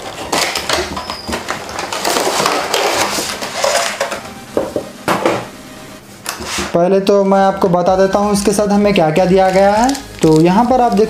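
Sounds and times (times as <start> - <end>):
packaging rustling and scraping: 0.0 - 4.3, 6.2 - 6.8, 8.9 - 11.0.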